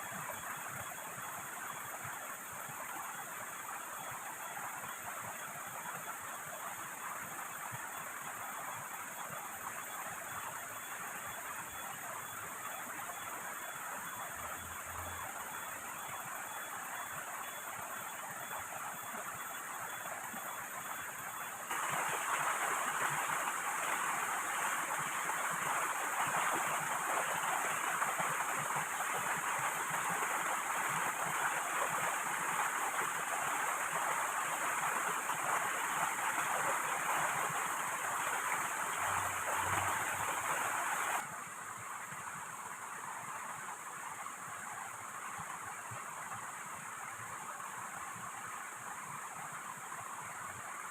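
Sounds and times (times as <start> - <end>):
heavy rain: 21.7 - 41.2
river water rushing: 21.7 - 41.2.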